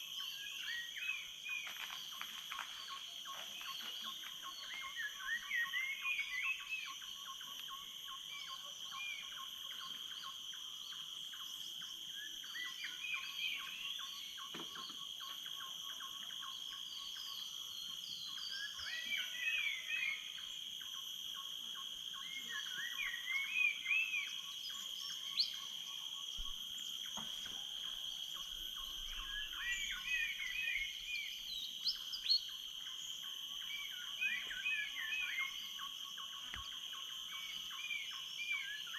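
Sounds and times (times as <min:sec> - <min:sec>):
insects shrill tones: 0:22.0 - 0:38.9.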